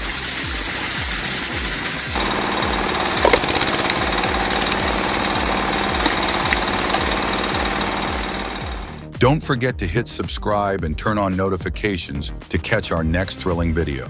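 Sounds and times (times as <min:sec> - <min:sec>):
machine rattling vibration: 0:00.0 - 0:09.1
low regular thuds: 0:00.0 - 0:14.0.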